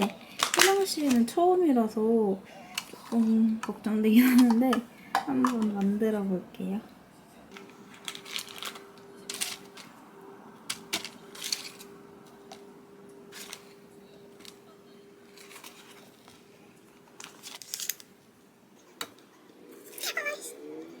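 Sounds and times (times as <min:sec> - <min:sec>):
utensils and packaging handled: 0:00.0 - 0:01.5, 0:02.6 - 0:05.9, 0:07.5 - 0:10.0, 0:10.6 - 0:12.7, 0:13.3 - 0:18.2
faint steady hum: 0:00.0 - 0:19.8.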